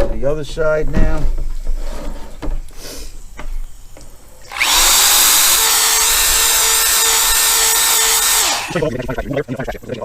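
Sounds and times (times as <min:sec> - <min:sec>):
power drill running: 0:04.4 - 0:08.8.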